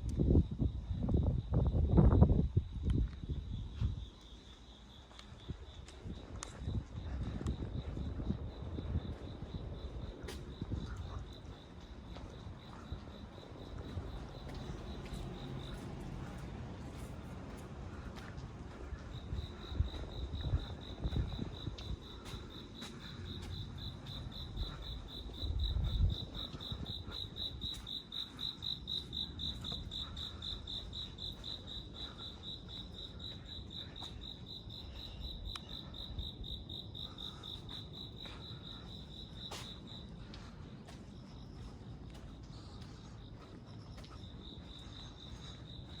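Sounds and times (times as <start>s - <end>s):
cricket trilling: 1.4s - 17.2s, 18.9s - 40.2s.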